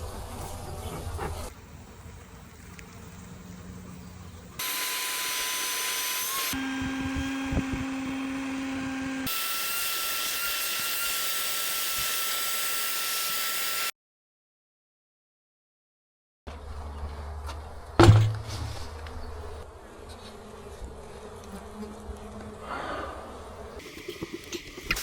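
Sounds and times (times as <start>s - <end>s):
small motor whining: 4.6s - 13.9s.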